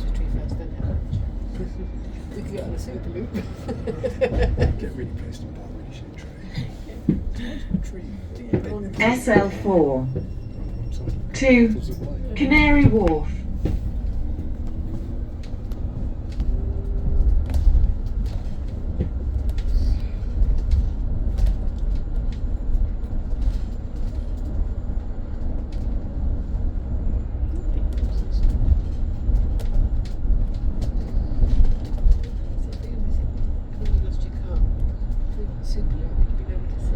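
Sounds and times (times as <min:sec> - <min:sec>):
bodywork rattles and clicks: 0:00.0 - 0:26.2, 0:27.5 - 0:36.9
bus road rumble: 0:00.0 - 0:36.9.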